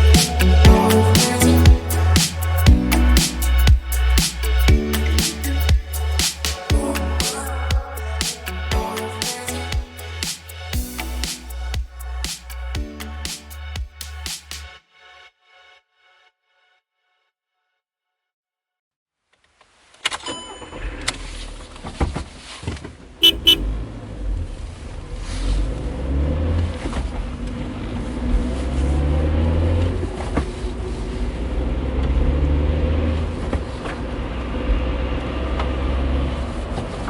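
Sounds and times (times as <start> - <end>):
car horn toots: 23.2 - 23.7.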